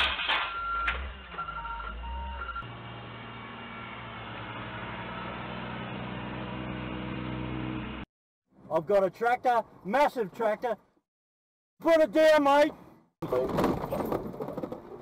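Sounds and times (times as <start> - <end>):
short electronic beeps: 0.4 - 2.6.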